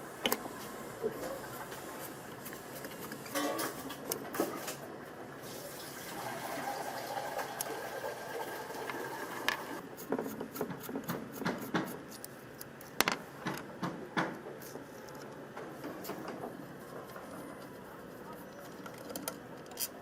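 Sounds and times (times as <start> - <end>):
running water: 5.4 - 9.8.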